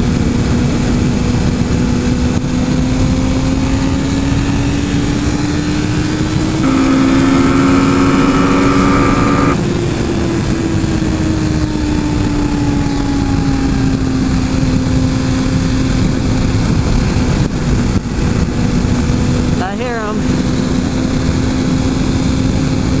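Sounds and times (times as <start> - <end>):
motorcycle engine running: 0.0 - 23.0
steady rush of noise: 2.3 - 10.6
higher-pitched engine note: 4.0 - 11.3.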